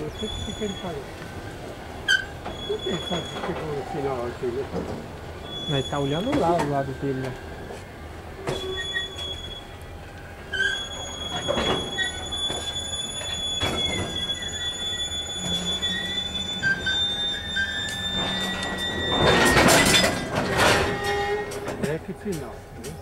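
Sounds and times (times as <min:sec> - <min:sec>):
high-pitched wheel squeal: 0:00.0 - 0:04.6, 0:05.4 - 0:21.8
freight wagons rolling: 0:00.0 - 0:23.0
clanks and knocks of couplings: 0:18.2 - 0:23.0.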